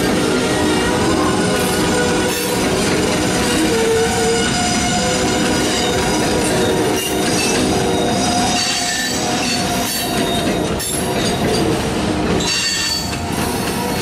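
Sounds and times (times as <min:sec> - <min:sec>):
steel wheels squealing: 0:00.0 - 0:11.7, 0:12.4 - 0:14.0
wheels rumbling on rail: 0:00.0 - 0:14.0.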